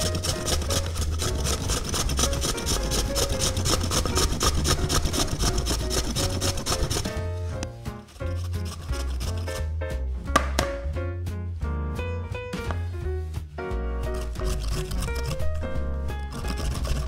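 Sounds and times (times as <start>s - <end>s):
potato grated on metal grater: 0.0s - 9.8s, 14.0s - 17.0s.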